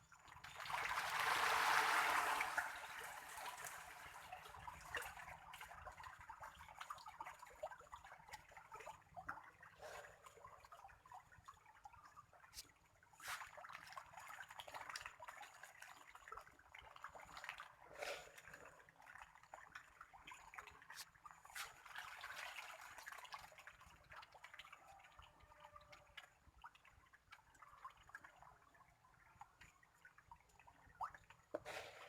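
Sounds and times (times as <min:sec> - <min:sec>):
fish splashing and gulping: 0:29.4 - 0:32.0.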